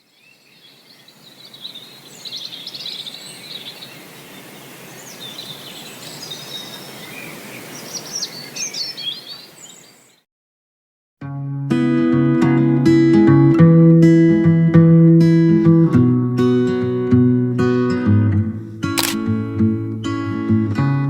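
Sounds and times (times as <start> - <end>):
birds chirping and trilling: 0.0 - 10.2
outdoor hiss: 0.1 - 10.2.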